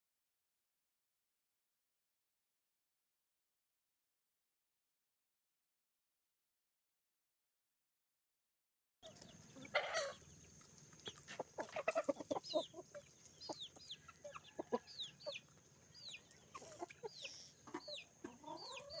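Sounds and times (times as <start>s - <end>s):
chickens clucking: 9.0s - 19.0s.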